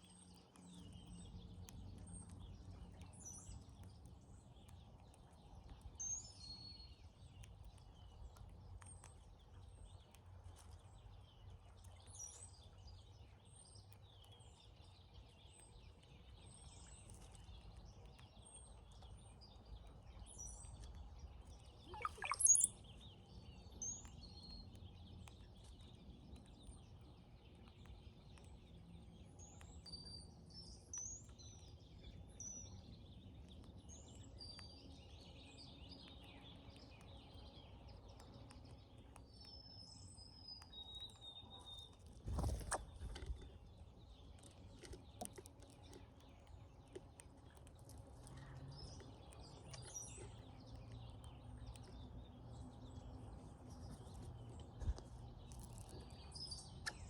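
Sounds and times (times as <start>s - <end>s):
birds whistling and squeaking: 21.8s - 22.9s, 48.6s - 53.1s, 55.7s - 57.0s.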